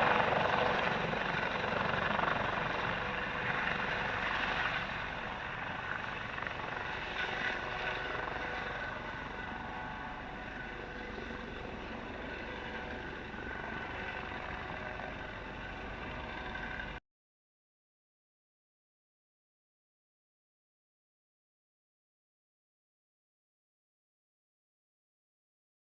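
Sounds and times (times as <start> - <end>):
helicopter rotor noise: 0.0 - 17.0
helicopter turbine whine: 0.0 - 17.0.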